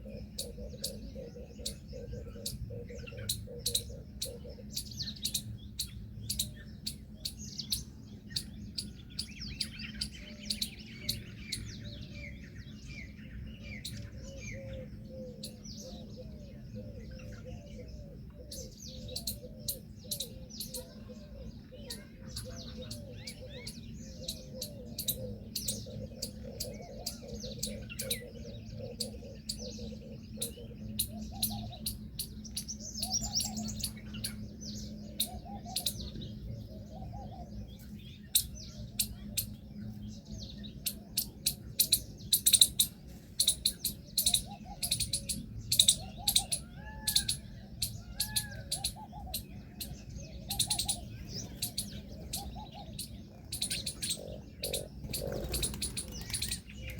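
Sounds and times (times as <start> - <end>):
steady low hum: 0.0 - 46.7, 47.4 - 56.9
lower arched bird call: 40.2 - 56.9.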